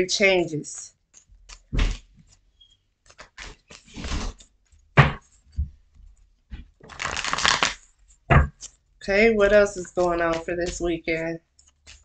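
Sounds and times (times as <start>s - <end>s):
cards riffle shuffling: 3.0s - 4.5s, 6.8s - 8.8s, 9.5s - 12.0s.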